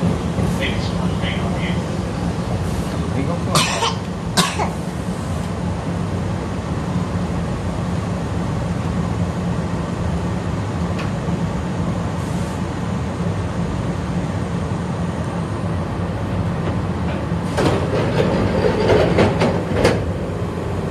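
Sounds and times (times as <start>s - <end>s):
wheel-on-rail rumble: 0.0s - 20.9s
wheels clattering and knocking: 17.1s - 20.1s.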